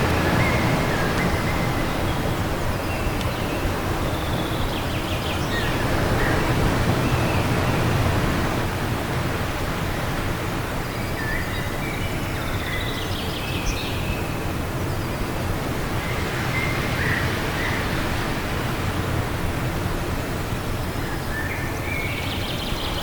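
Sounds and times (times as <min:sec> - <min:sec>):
small birds chirping: 0:00.0 - 0:08.0
wind blowing: 0:00.0 - 0:11.1.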